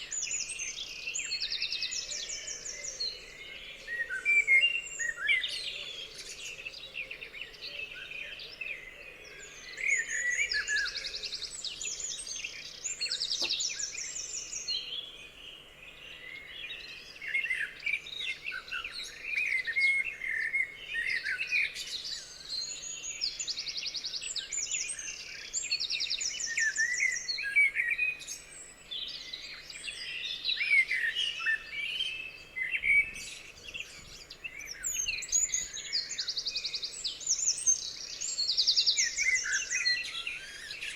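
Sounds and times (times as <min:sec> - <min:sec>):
songbirds chirping and warbling: 0:00.0 - 0:40.9.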